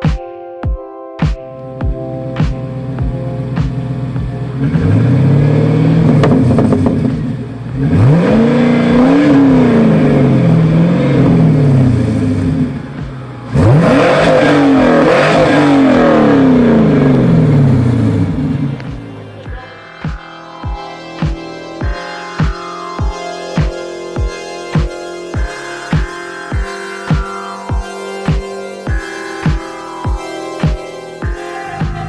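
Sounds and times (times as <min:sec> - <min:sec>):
car engine revving hard: 0:03.7 - 0:19.2.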